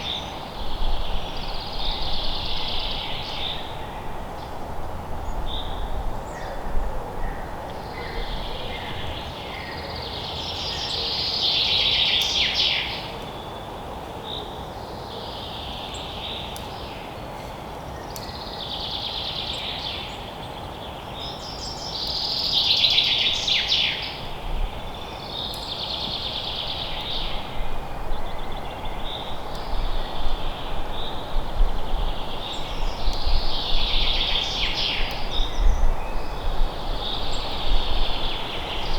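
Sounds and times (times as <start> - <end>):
songbirds singing: 0.0 - 38.9
steady background hiss: 0.0 - 38.9.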